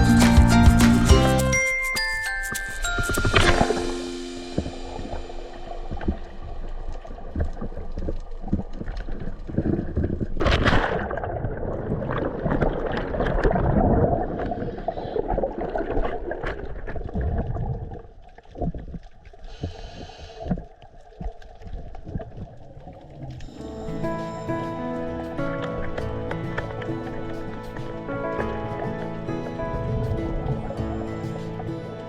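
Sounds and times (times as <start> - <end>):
water splash: 2.2 - 19.1
bubbles churning and gurgling: 4.7 - 23.7.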